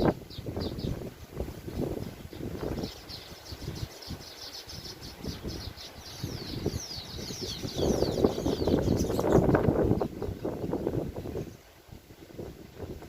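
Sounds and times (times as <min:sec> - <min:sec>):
wind gusts on microphone: 0:00.0 - 0:13.0
birds chattering: 0:02.0 - 0:10.6.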